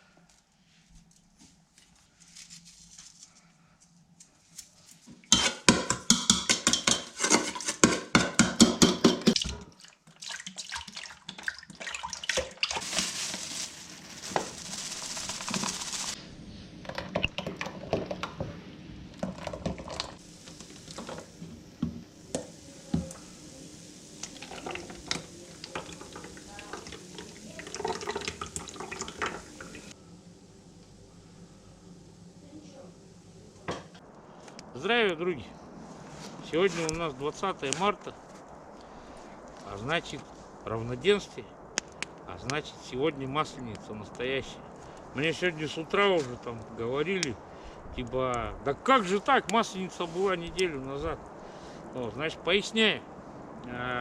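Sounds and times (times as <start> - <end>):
dishes and cutlery clinking: 5.3 - 9.4
liquid pouring and splashing: 9.3 - 16.2, 24.0 - 30.0.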